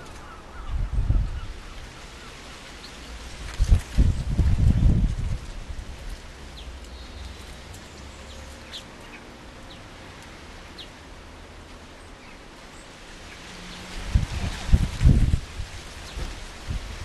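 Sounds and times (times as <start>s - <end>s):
small birds chirping: 6.0s - 11.0s, 12.0s - 13.9s.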